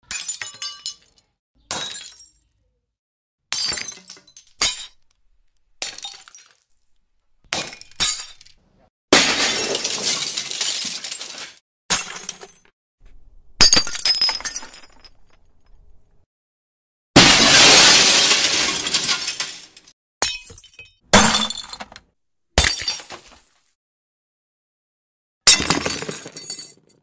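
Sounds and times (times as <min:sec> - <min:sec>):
drinking glasses breaking: 0:17.2 - 0:21.9.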